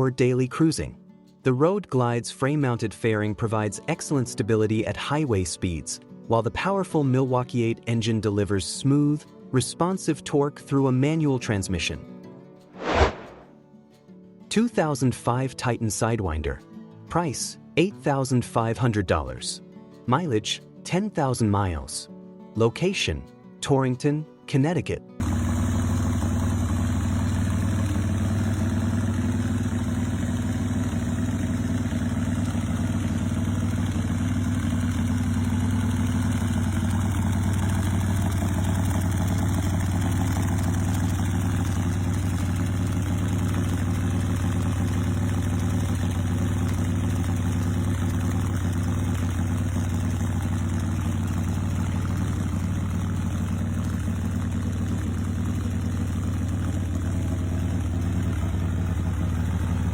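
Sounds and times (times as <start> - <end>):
motorcycle engine idling: 25.2 - 59.9.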